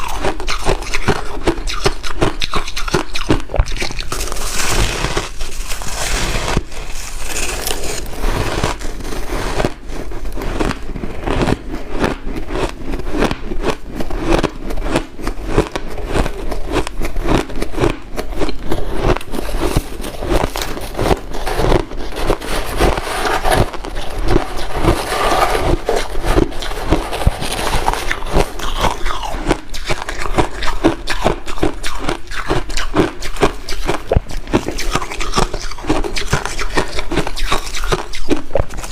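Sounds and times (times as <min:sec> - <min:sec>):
person crunching ice: 0:00.0 - 0:38.9
scraping: 0:04.1 - 0:10.8, 0:18.6 - 0:29.0.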